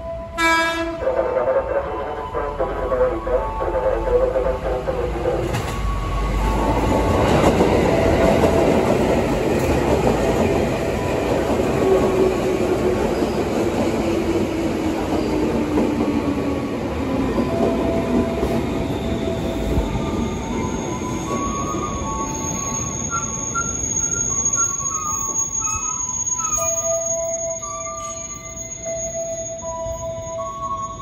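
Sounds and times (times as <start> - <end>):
train wheels rumbling and clacking: 5.1 - 27.2.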